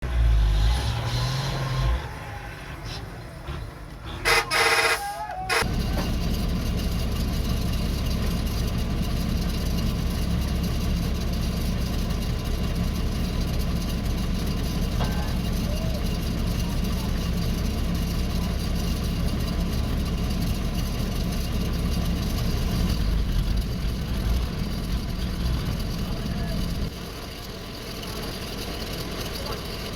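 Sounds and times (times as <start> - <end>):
truck engine droning: 0.0 - 29.9
short loud burst: 4.2 - 5.7.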